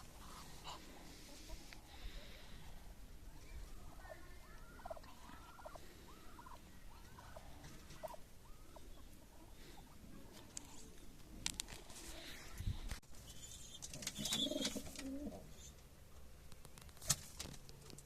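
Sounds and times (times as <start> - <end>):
fowl calling: 4.0 - 10.0.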